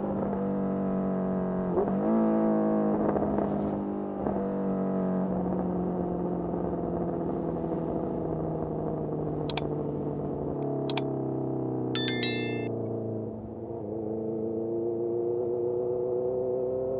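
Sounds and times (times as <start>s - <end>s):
quick high clicks: 12.0s - 12.7s.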